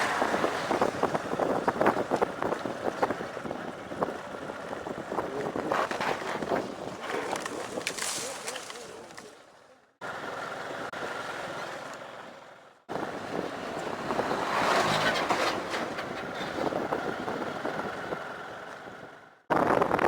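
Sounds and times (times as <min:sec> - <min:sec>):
motorcycle engine on dirt road: 0:00.0 - 0:08.1
gravel ticking: 0:00.0 - 0:12.3.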